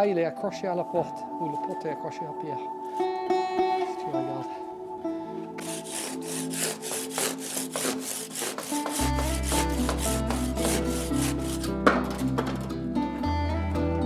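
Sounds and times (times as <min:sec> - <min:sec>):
background music: 0:00.0 - 0:14.0
handsaw cutting stone: 0:05.6 - 0:12.7.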